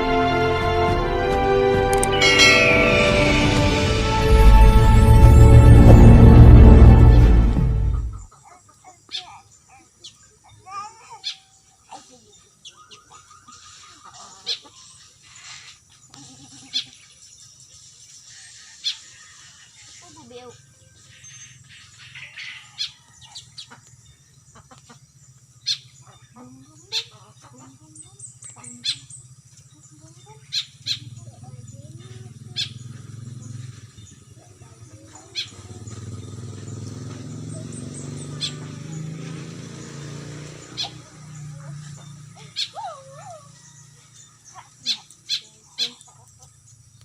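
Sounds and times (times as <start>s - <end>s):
low engine hum: 2.8s - 8.3s, 35.2s - 42.6s
starling calls: 8.2s - 46.9s
sharp high bird calls: 40.4s - 46.3s.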